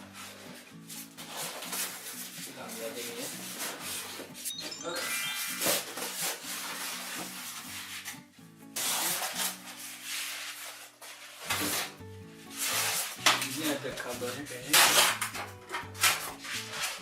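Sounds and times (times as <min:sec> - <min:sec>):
background music: 0:00.0 - 0:17.0
cardboard rubbing and scraping: 0:08.8 - 0:14.4, 0:16.0 - 0:17.0.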